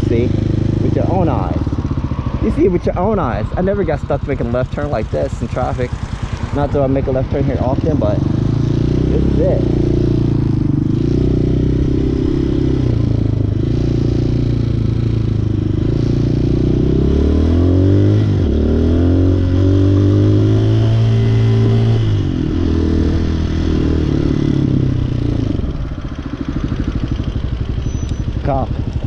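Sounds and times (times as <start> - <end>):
traffic engines idling: 0.0 - 16.8, 23.4 - 29.0
motorcycle engine running: 0.0 - 29.0.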